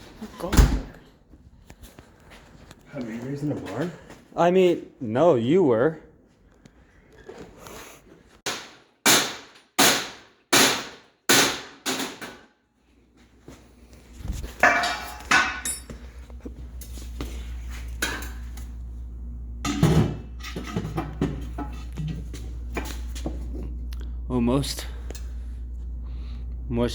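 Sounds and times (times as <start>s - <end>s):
hammer striking sheet metal: 8.4s - 12.4s
steady low hum: 13.2s - 26.9s.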